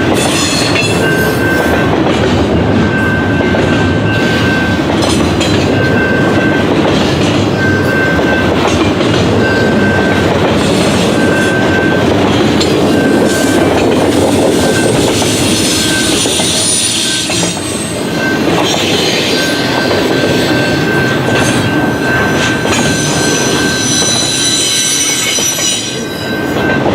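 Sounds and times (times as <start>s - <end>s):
freight train wheels rumbling on rail: 0.0s - 26.9s
high tone: 9.4s - 26.9s
wheel squeals: 22.6s - 26.8s.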